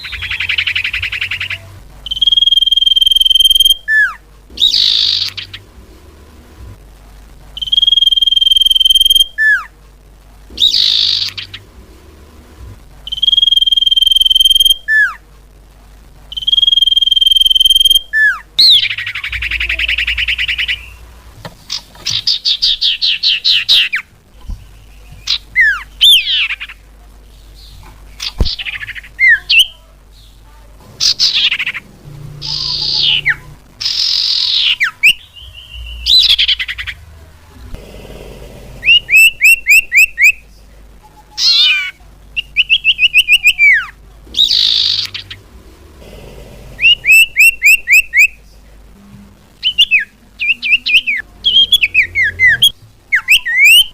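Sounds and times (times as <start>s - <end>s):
bird song and calls: 0.0s - 5.6s, 10.6s - 11.6s, 16.4s - 21.0s, 31.0s - 37.0s, 41.4s - 45.4s, 49.6s - 53.9s.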